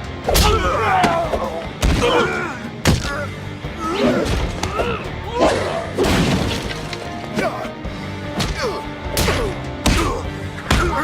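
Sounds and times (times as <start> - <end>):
action music: 0.0 - 11.0
punch and kick impacts: 8.4 - 11.0.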